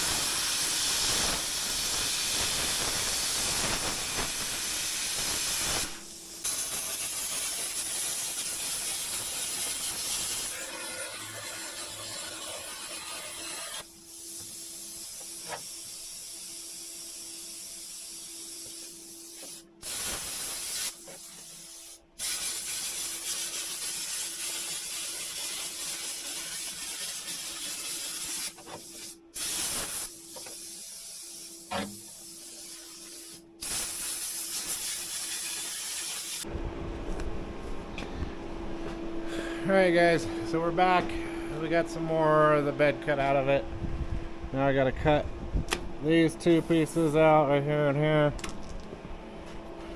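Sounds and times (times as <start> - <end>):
cutting torch hissing: 0.0 - 36.5, 44.5 - 47.8.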